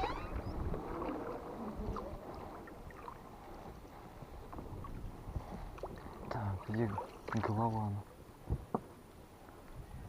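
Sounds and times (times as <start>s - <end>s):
wind buffeting microphone: 0.0s - 7.4s, 8.3s - 8.8s, 9.7s - 10.0s
water splashing: 0.0s - 8.0s.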